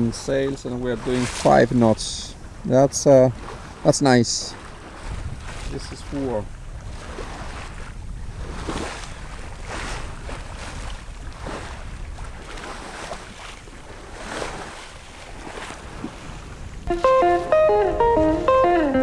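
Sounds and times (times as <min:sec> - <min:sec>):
water rushing along hull: 0:00.0 - 0:18.6
wind rumbling on microphone: 0:04.7 - 0:16.9.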